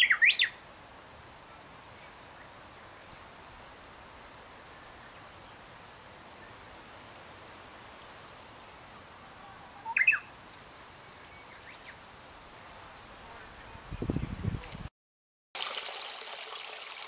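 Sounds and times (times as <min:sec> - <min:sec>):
songbird call: 0:00.0 - 0:00.6, 0:09.3 - 0:10.3
faint bird chirps: 0:09.4 - 0:10.3
small stream flowing: 0:15.6 - 0:17.0.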